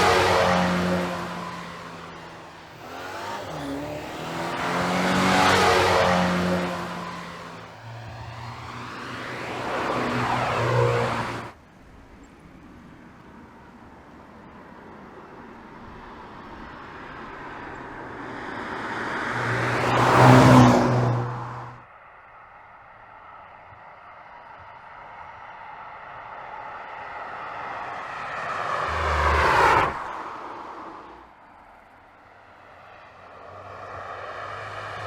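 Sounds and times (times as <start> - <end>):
car engine and exhaust passing: 0.0 - 11.6, 15.8 - 21.8, 26.5 - 35.0.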